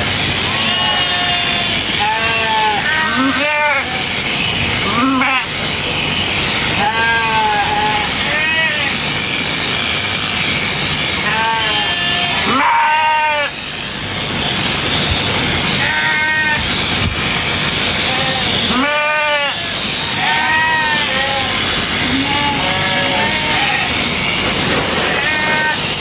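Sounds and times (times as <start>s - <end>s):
steady background noise: 0.0s - 26.0s
sheep bleating: 0.4s - 4.2s, 4.8s - 5.6s, 6.7s - 9.0s, 11.2s - 13.6s, 15.7s - 16.8s, 18.0s - 25.9s.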